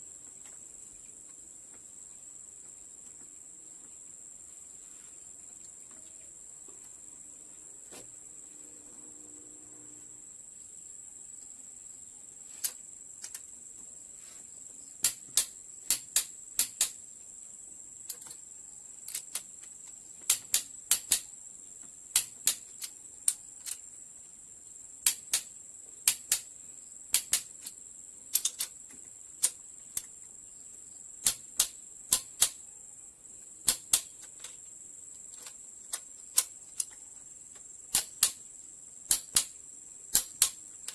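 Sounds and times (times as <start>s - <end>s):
steady high-pitched hiss: 0.0s - 40.9s
hand tools clicking and tapping: 12.6s - 13.5s, 15.0s - 17.0s, 18.0s - 18.4s, 19.0s - 21.3s, 22.1s - 23.8s, 25.0s - 26.5s, 27.1s - 30.3s, 31.2s - 32.6s, 33.6s - 38.4s, 39.1s - 40.9s.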